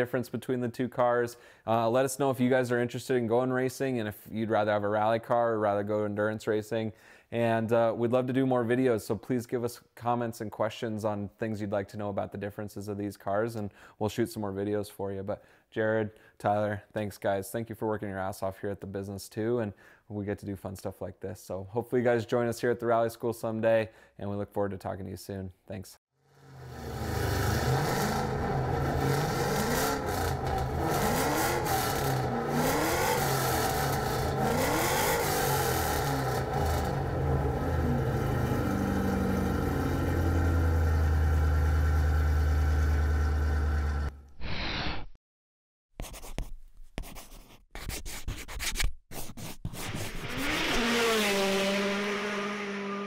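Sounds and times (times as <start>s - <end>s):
race car engine revving: 26.5s - 44.0s, 50.2s - 53.0s.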